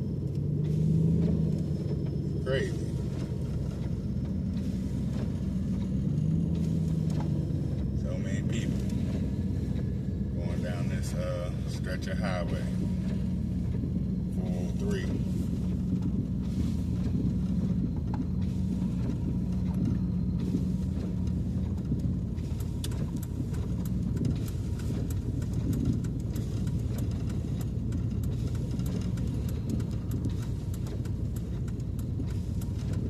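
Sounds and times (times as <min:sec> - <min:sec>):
engine and road rumble in cab: 0:00.0 - 0:33.0
steady hum: 0:00.0 - 0:33.0
faint ticks: 0:14.8 - 0:33.0.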